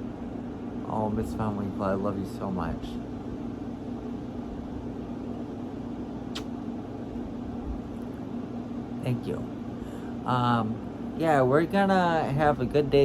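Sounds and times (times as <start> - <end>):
low mechanical hum: 0.0 - 13.0
short click: 6.3 - 6.5.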